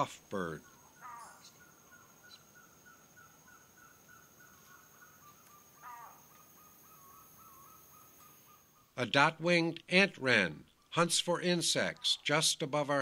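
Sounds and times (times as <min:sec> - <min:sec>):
harsh bird call: 0:00.0 - 0:09.1.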